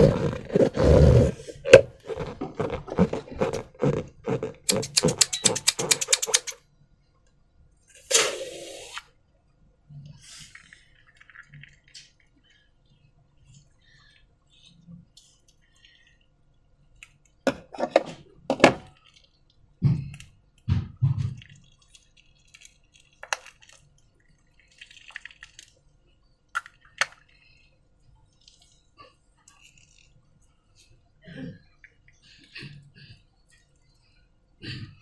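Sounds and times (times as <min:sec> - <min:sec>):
slime squelching: 0:00.0 - 0:06.6, 0:21.2 - 0:25.9
sharp clicks and clinks: 0:04.7 - 0:06.6.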